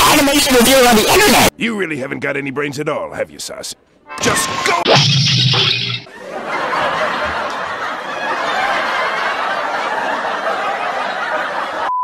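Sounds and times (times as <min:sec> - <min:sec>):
crowd laughing and chattering: 0:06.1 - 0:11.9.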